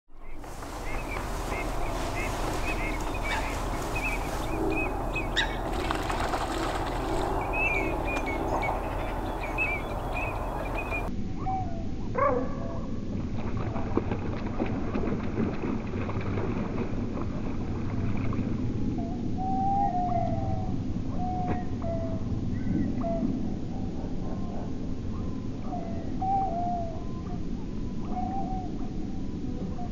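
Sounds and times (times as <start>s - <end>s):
birds chirping: 0.1s - 11.1s
steady low hum: 0.1s - 11.3s.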